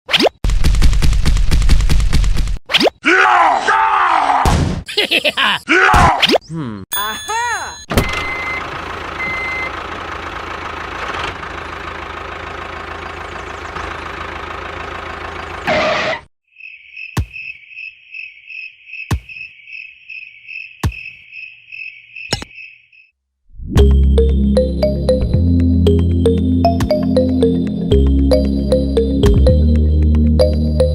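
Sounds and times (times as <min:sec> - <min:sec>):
insect-like chirps: 0:16.5 - 0:23.1.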